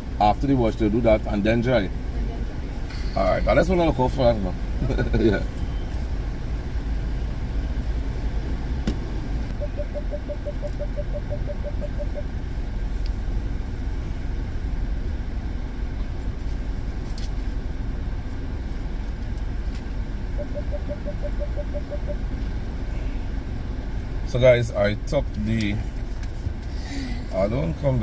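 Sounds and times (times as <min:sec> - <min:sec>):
car engine idling: 0:00.0 - 0:28.0
short even beeps: 0:09.5 - 0:12.3, 0:20.3 - 0:22.4.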